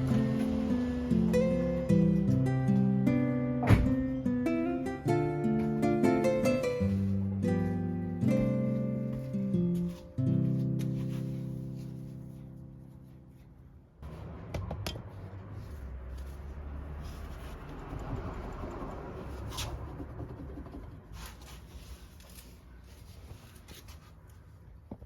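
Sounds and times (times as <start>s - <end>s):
rubbing and scraping: 15.0s - 24.7s.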